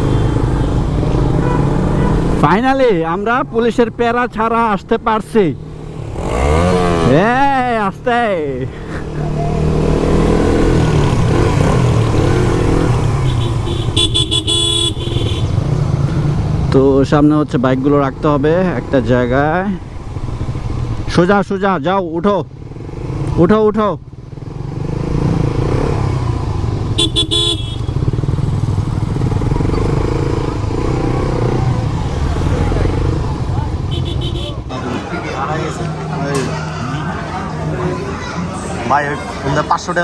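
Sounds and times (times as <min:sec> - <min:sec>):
motorcycle engine running: 0:00.0 - 0:02.7, 0:05.2 - 0:17.0, 0:22.4 - 0:40.0
vehicle horn beeping: 0:01.2 - 0:02.2, 0:13.2 - 0:15.7, 0:27.0 - 0:28.2, 0:33.8 - 0:35.0.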